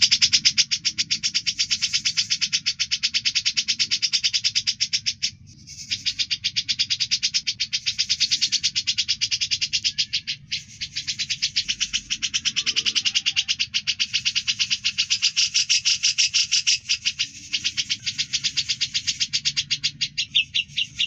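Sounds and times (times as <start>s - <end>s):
songbird harsh rapid call: 0.0s - 21.0s.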